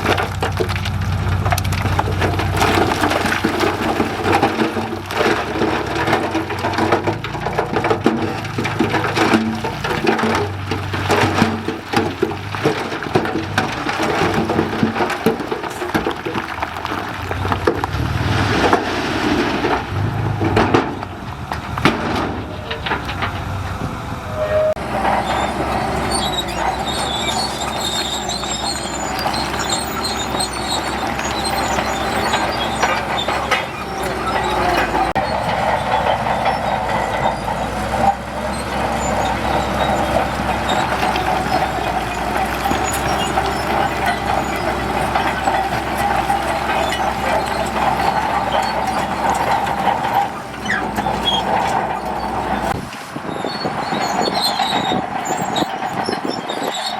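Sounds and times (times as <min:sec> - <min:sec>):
diesel engine under load: 0:00.0 - 0:56.9
steel tracks clanking: 0:00.0 - 0:56.9
steady metallic squeal: 0:24.2 - 0:56.9.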